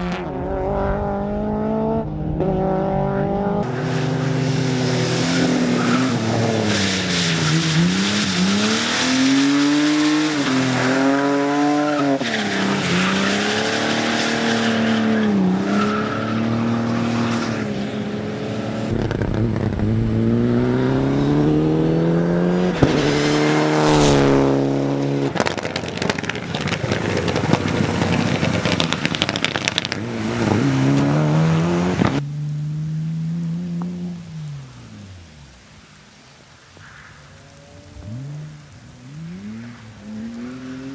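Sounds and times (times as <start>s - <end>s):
car engine revving: 0.0s - 12.0s, 18.0s - 26.7s, 27.5s - 34.3s
engine crackling: 18.4s - 35.9s.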